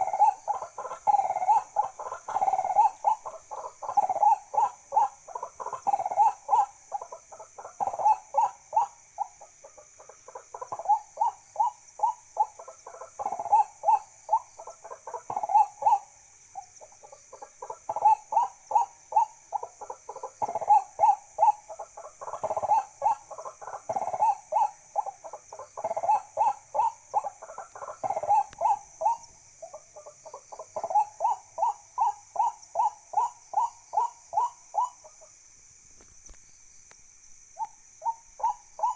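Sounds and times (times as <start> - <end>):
bird hooting: 0.0 - 9.4, 10.3 - 35.3, 37.6 - 38.9
high-pitched insect hiss: 0.0 - 38.9.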